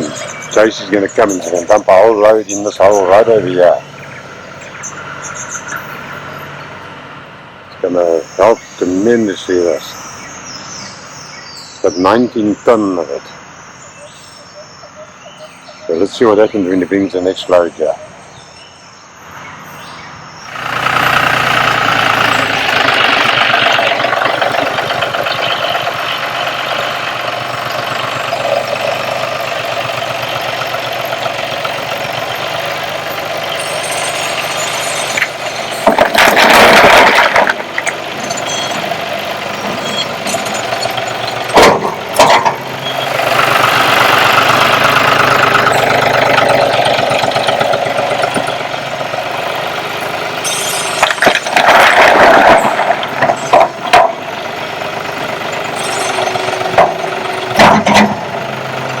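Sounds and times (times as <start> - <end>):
tractor engine running: 0.0 - 59.0
loud noisy rush of rocks: 35.6 - 38.2, 51.1 - 53.6
sharp bangs: 41.2 - 42.6.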